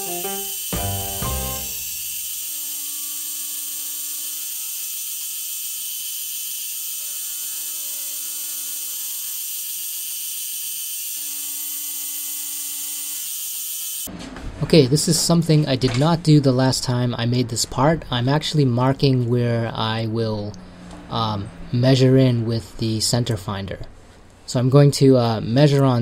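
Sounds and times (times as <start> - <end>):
milling machine motor whine: 0.0 - 14.1.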